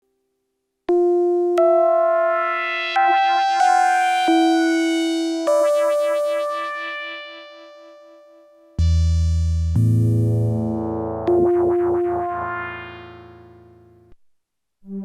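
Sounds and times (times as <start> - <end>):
bright synthesizer notes: 2.5 - 7.9, 8.8 - 14.1.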